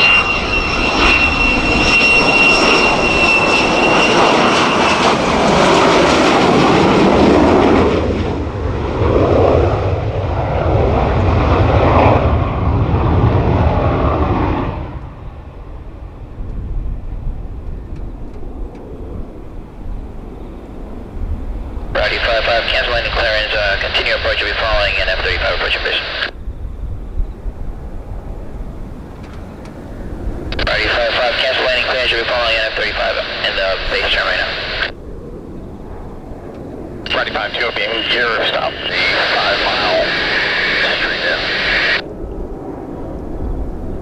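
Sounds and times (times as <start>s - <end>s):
high jet whine: 0.0s - 8.2s, 17.7s - 26.4s, 30.4s - 42.8s
jet engine flying past: 0.0s - 44.0s.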